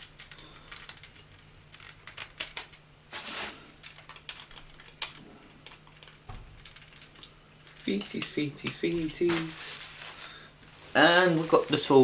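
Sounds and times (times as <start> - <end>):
plastic toy parts clicking: 0.0 - 2.8, 3.8 - 9.2.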